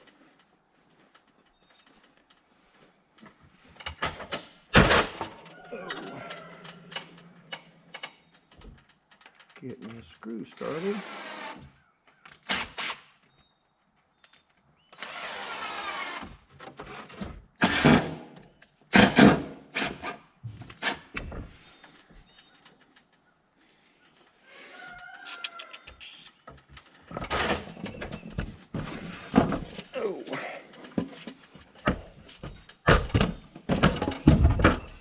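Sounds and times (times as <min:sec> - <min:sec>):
cordless drill driving screw: 0:10.7 - 0:11.7, 0:15.0 - 0:16.3.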